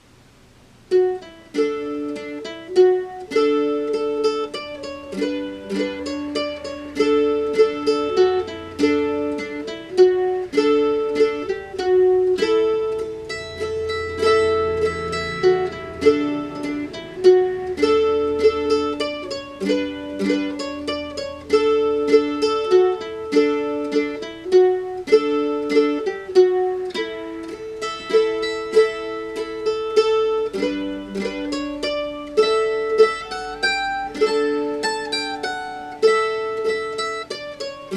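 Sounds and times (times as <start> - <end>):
plucked string folk waltz: 0.7 - 37.9.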